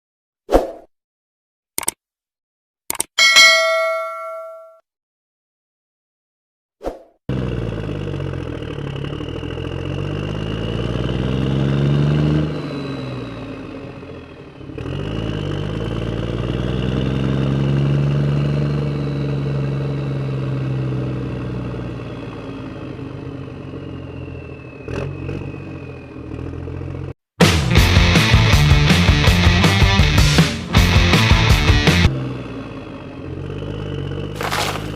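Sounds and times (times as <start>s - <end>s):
vehicle engine revving: 7.3s - 27.1s, 27.8s - 34.9s.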